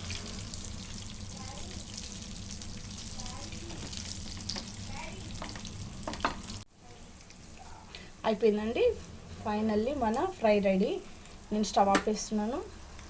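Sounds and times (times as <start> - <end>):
fish sizzling in hot oil: 0.0 - 8.2.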